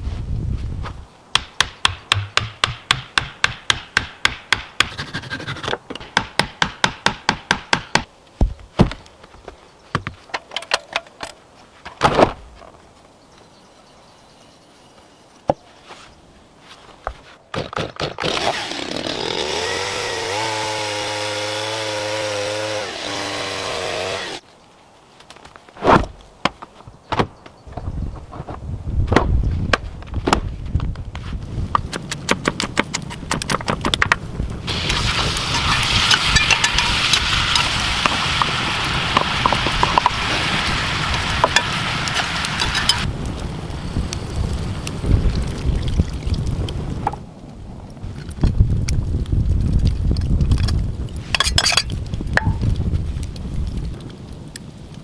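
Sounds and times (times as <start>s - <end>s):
knocks on wood: 1.4s - 4.9s.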